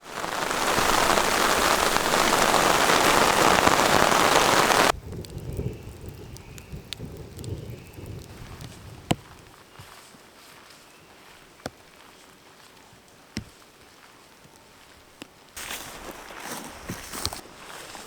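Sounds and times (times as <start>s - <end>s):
heavy rain pouring: 0.0s - 9.2s.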